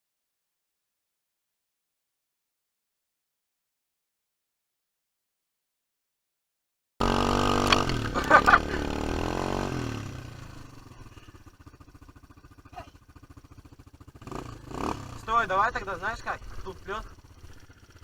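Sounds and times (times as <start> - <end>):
quad bike engine revving and idling: 7.0 - 18.0.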